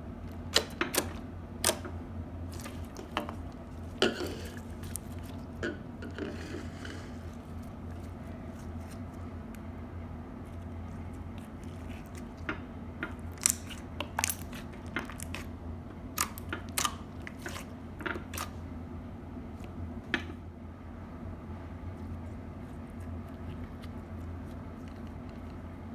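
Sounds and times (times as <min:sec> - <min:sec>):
steady low hum: 0:00.0 - 0:25.9
slime crackling and popping: 0:13.3 - 0:15.5, 0:16.2 - 0:17.6.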